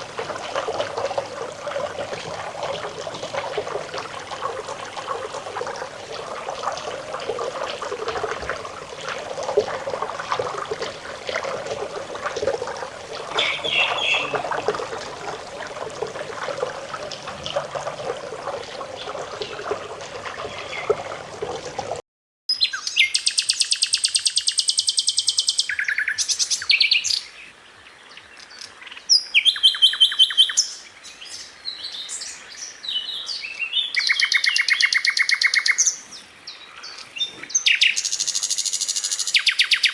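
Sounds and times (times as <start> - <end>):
trickling stream: 0.0 - 39.9
bird singing rattling trills: 13.3 - 14.4.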